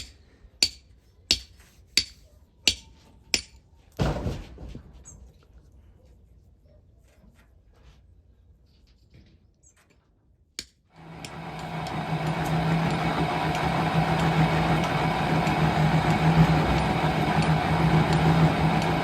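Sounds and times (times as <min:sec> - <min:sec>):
engine starting and running: 0:11.0 - 0:19.0.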